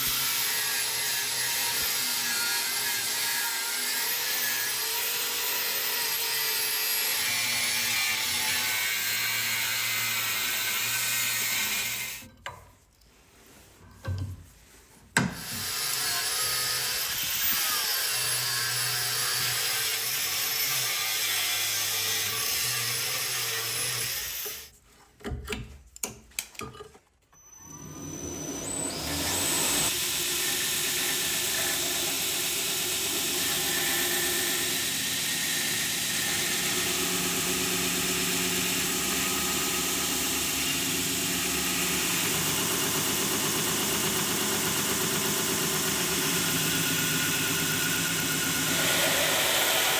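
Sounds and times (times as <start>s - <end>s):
power tool motor under load: 27.4s - 32.1s, 33.1s - 49.9s.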